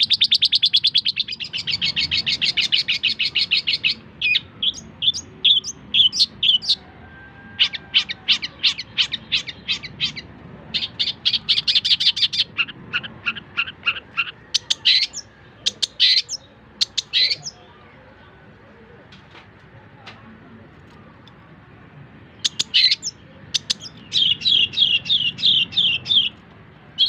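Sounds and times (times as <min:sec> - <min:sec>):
shrike singing sharp chips: 0:00.0 - 0:06.8, 0:07.6 - 0:17.7, 0:22.3 - 0:27.0.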